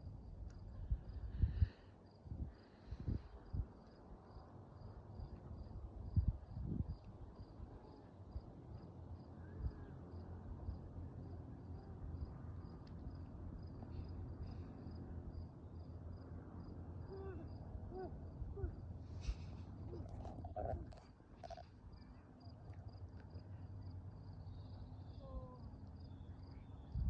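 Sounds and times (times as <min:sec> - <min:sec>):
low outdoor rumble: 0:00.0 - 0:27.0
insect chirping: 0:19.7 - 0:27.0.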